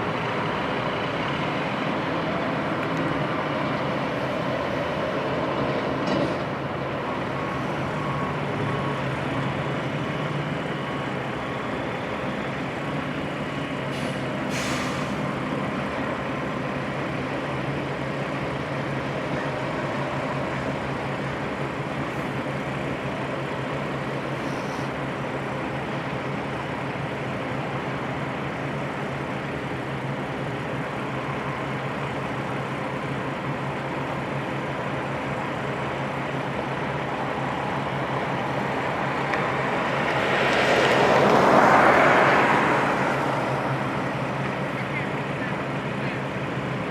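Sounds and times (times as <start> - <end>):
diesel truck engine running: 0.0 - 46.9
air hiss: 13.9 - 15.2.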